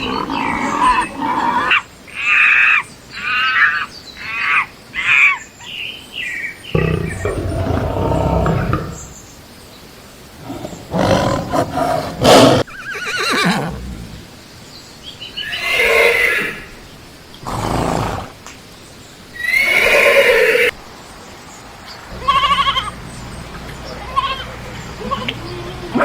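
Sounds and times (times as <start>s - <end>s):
horse whinnying: 0.0s - 1.8s, 12.2s - 14.2s, 19.4s - 20.7s.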